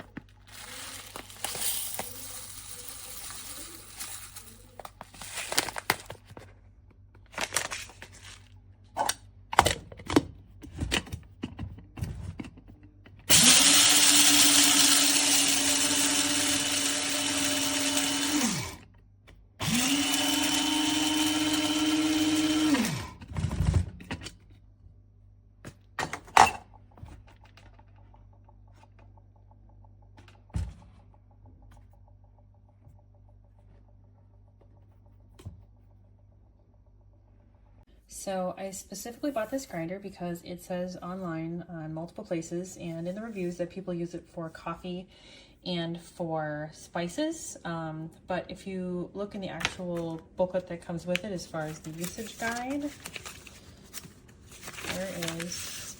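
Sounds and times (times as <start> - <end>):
coffee grinder motor running: 0.4 - 5.6, 13.3 - 18.9, 19.6 - 23.3.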